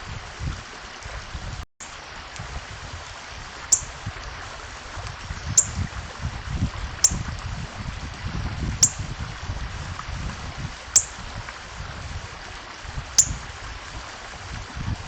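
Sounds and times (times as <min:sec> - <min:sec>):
bird chip notes: 0:13.2 - 0:13.4.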